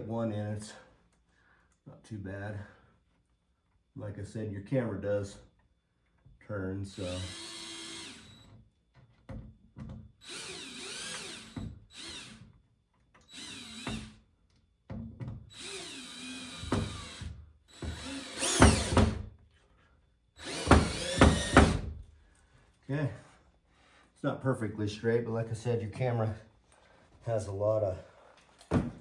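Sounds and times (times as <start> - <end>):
power drill driving a screw: 7.0 - 8.5, 10.2 - 12.4, 13.2 - 14.2, 15.5 - 19.2, 20.4 - 21.9.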